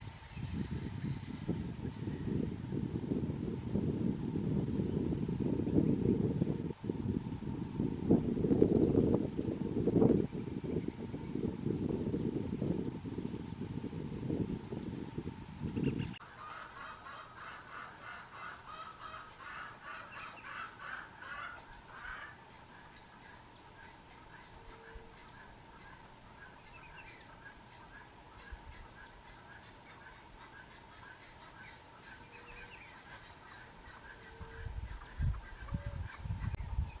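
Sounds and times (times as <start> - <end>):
high insect trill: 0.1 - 37.0
faint bird calls: 13.8 - 37.0.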